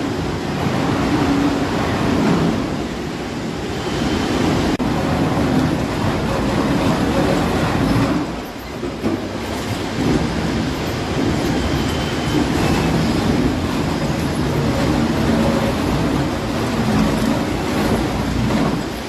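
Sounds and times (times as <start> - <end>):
machine rumbling: 4.8 - 19.0
clattering and knocking: 5.2 - 19.0.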